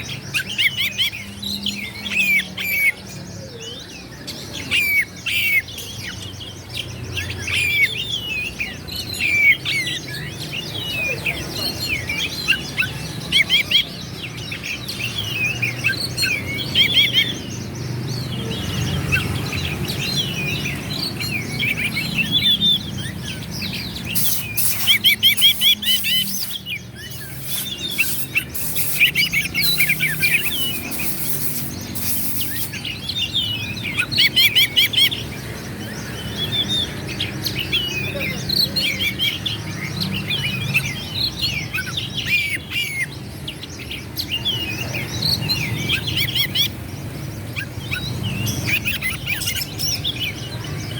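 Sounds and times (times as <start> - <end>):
magpie-robin singing: 0.0 - 50.9.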